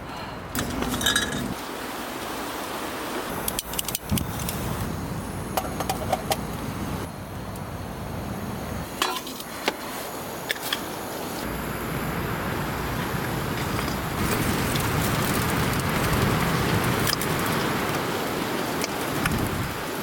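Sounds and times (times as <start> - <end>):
glass and metal clinking: 0.6 - 1.6
wind blowing: 11.7 - 20.0.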